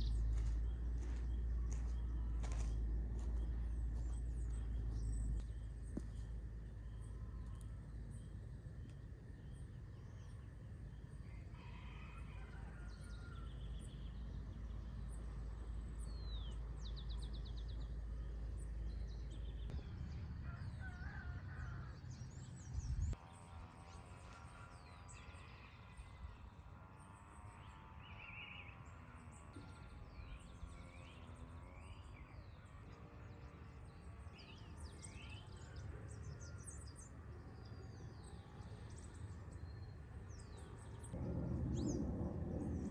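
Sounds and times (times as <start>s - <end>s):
low background rumble: 0.0s - 11.6s, 13.3s - 23.2s, 36.8s - 42.9s.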